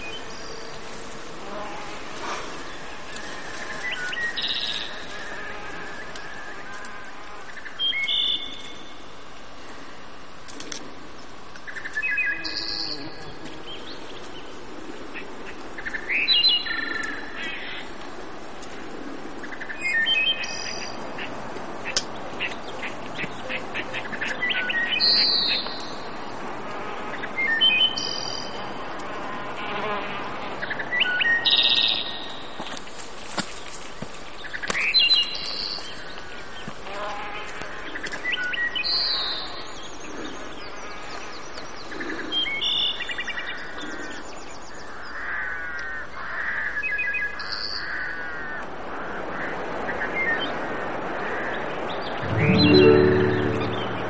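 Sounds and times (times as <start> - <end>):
bird singing high phrases: 52.2 - 54.0.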